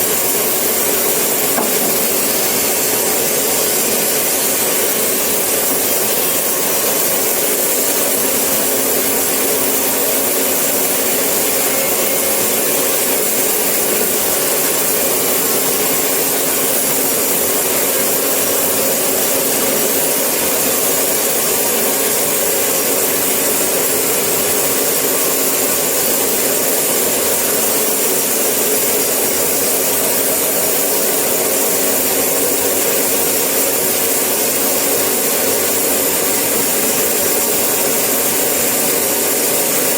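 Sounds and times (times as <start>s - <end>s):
sawmill saw cutting wood: 0.1s - 25.4s.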